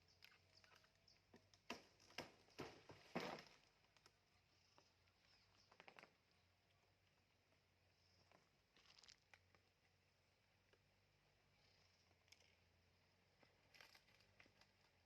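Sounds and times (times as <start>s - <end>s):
small clicks: 12.0s - 12.7s.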